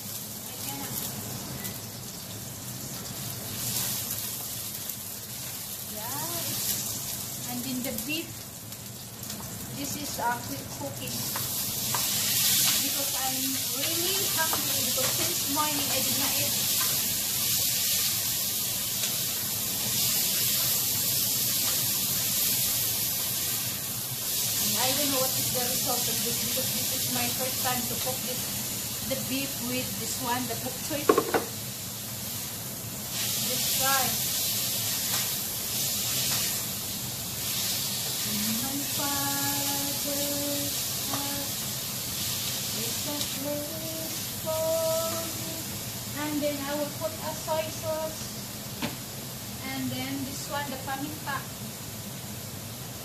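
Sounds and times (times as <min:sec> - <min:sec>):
beef sizzling in hot oil: 0:00.0 - 0:53.0
woman humming: 0:43.1 - 0:45.7.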